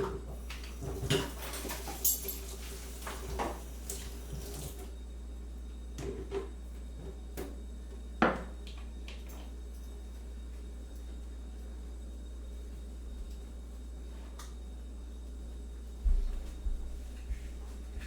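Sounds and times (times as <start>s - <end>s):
crockery and utensils clattering: 0.8s - 3.4s.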